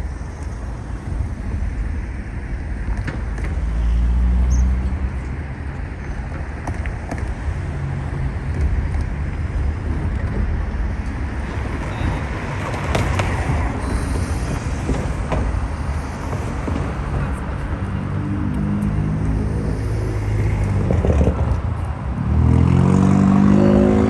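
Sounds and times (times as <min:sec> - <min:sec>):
cars passing with low rumble: 0:00.0 - 0:24.0.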